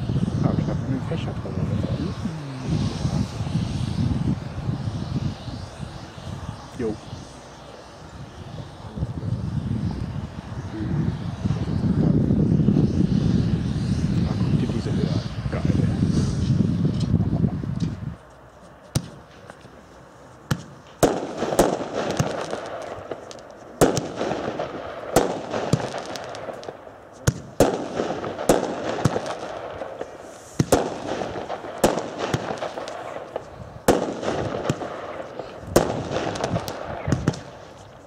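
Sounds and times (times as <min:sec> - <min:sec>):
firework fountain rushing: 0:00.0 - 0:17.7, 0:18.3 - 0:38.0
firework crackling: 0:12.6 - 0:38.0
firework shells bursting: 0:20.4 - 0:38.0.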